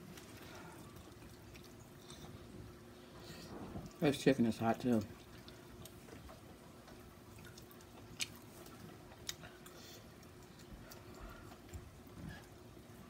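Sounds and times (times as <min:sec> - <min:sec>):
quiet chewing: 0:00.0 - 0:04.0, 0:04.9 - 0:13.0.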